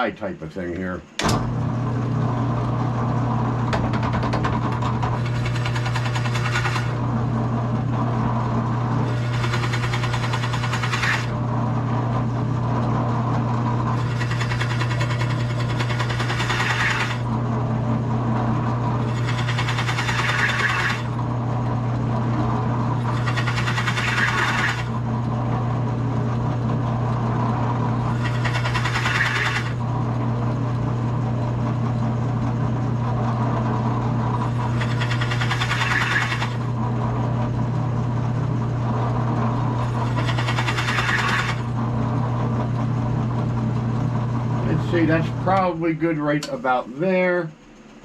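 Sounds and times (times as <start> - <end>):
drill press motor running: 0.8 - 48.0
drill bit cutting wood: 5.2 - 7.0, 9.0 - 11.4, 13.9 - 17.3, 19.0 - 21.2, 23.0 - 25.0, 28.0 - 29.8, 34.4 - 36.7, 39.8 - 41.7.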